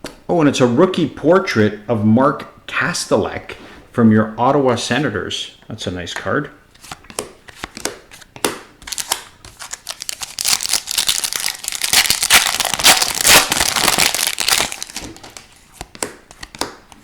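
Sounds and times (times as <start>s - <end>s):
foil wrapper crinkling and tearing: 8.9s - 15.5s.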